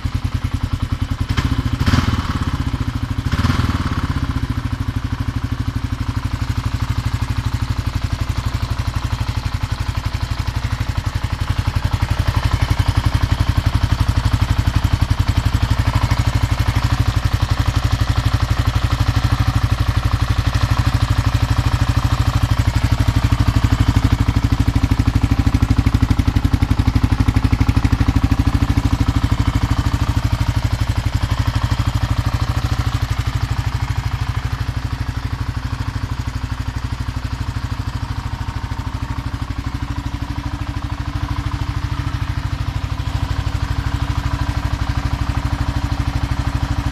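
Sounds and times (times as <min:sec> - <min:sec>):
motorcycle engine idling: 0:00.0 - 0:46.9.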